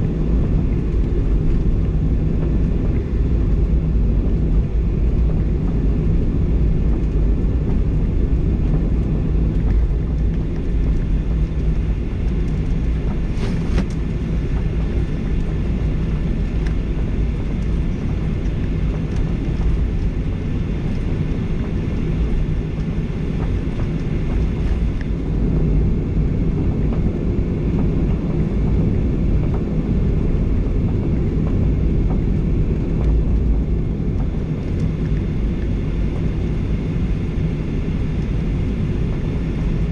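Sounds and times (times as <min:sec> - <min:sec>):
airplane cabin engine noise: 0:00.0 - 0:39.9.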